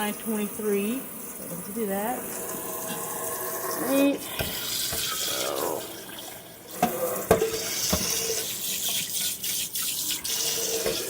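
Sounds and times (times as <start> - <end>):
tap running into sink: 4.2 - 11.0.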